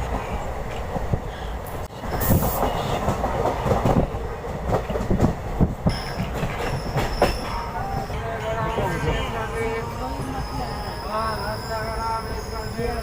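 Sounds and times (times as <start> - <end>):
train rumbling on track: 0.0 - 13.0
wheels clattering over rail joints: 3.2 - 8.1
high wheel squeal: 5.9 - 13.0.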